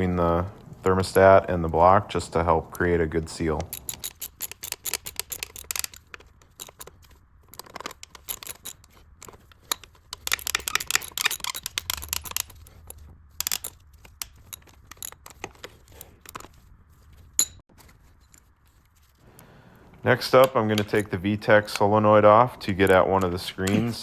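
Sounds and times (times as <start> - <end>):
socket ratchet clicking: 3.4 - 16.5.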